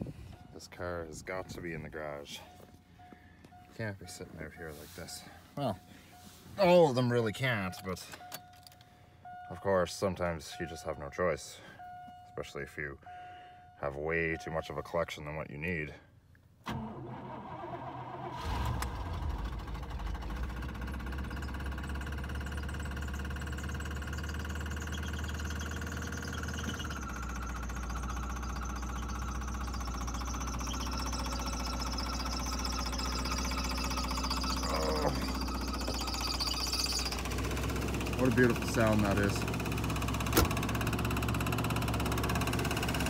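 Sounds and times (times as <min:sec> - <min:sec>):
car engine starting and idling: 0:16.4 - 0:43.0.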